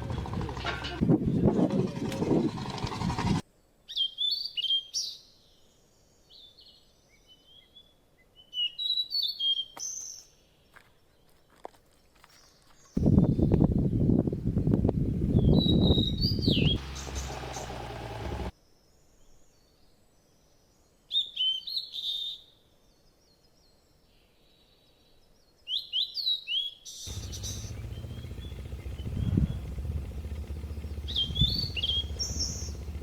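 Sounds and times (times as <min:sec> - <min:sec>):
small birds chirping: 0:15.3 - 0:18.5, 0:27.1 - 0:33.0
loud low rumble: 0:27.1 - 0:33.0.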